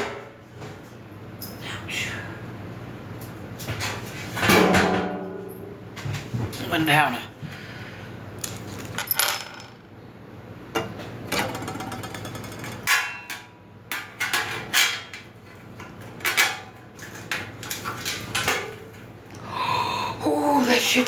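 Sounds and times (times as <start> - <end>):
knocks and clatter of grill parts: 3.6 - 6.6, 10.7 - 18.8.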